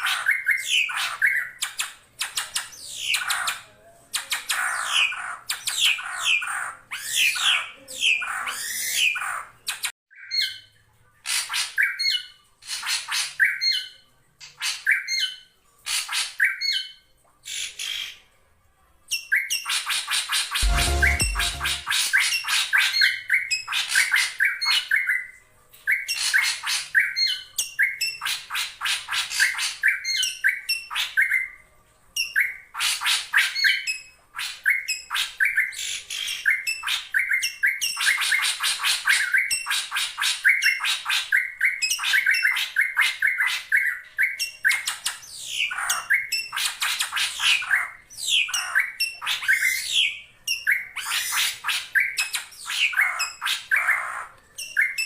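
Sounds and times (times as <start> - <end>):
bird harsh scratchy calls and whistles: 19.5 - 24.7, 32.8 - 55.0.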